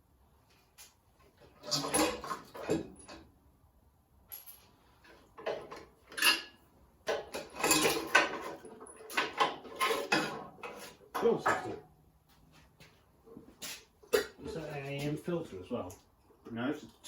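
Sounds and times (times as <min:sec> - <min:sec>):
parts scraping and clattering: 0:00.5 - 0:03.5, 0:04.3 - 0:11.8.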